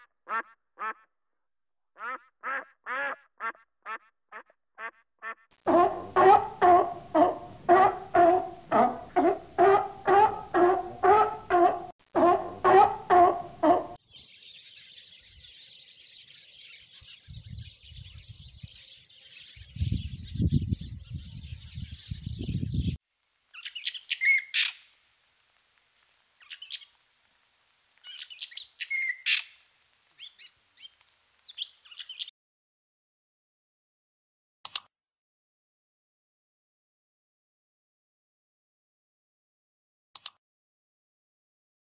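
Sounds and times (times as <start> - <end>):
birds chirping and calling: 10.5 - 23.0, 23.6 - 24.8, 28.1 - 29.6, 30.2 - 32.3.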